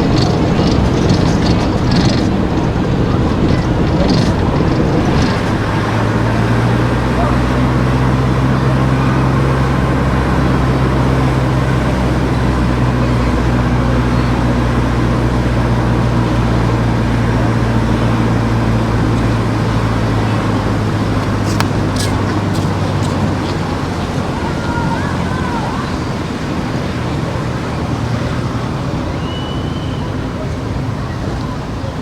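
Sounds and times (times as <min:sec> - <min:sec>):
car engine hum: 0:00.0 - 0:32.0
road and tyre noise: 0:00.0 - 0:32.0.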